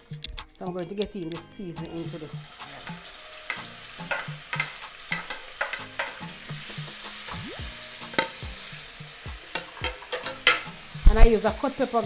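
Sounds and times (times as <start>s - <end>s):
food sizzling in a pot: 1.3s - 12.0s
spoon clicking against pot: 3.5s - 6.3s, 9.5s - 10.7s.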